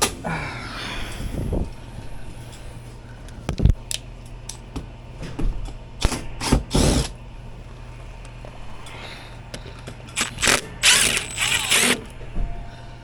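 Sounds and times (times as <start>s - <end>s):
low hum: 7.2s - 13.0s.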